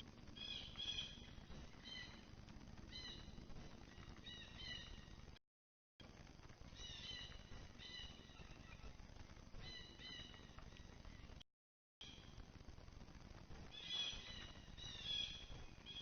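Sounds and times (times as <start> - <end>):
low steady background noise: 0.0 - 5.4, 6.0 - 11.4, 12.0 - 16.0
faint bird calls: 0.3 - 2.3, 2.9 - 5.2, 6.7 - 11.4, 13.7 - 16.0.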